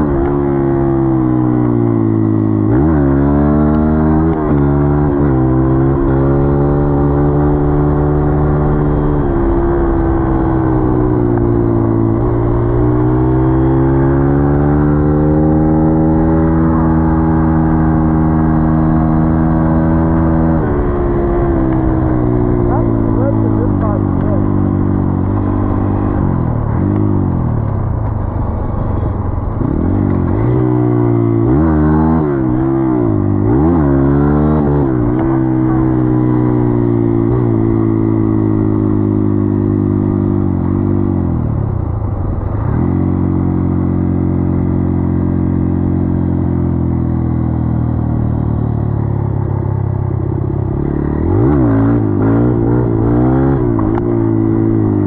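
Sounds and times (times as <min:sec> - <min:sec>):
dirt bike engine revving: 0:50.8 - 0:54.8.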